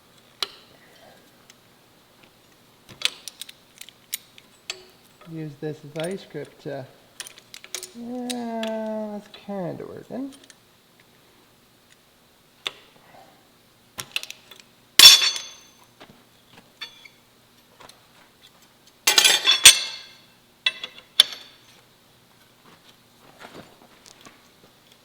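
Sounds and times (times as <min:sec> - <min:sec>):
metal-on-metal clanks: 0:15.0 - 0:15.7, 0:19.1 - 0:21.5.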